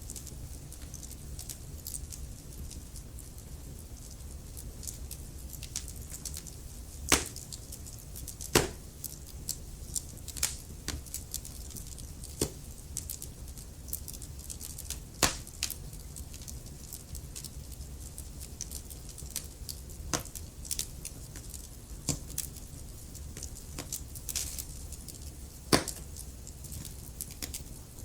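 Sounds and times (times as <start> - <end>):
wood fire crackling: 0.0 - 28.0
flames rumbling: 0.1 - 28.0
loud fire pops: 5.6 - 13.3, 14.2 - 15.8, 25.7 - 27.6.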